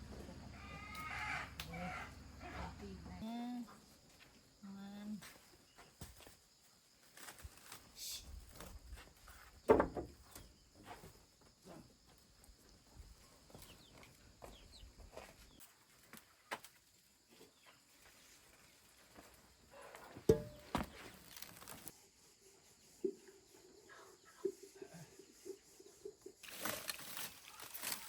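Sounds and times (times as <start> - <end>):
animal calls: 0.4 - 2.9
knocks: 9.7 - 10.2
rustling: 26.4 - 28.0.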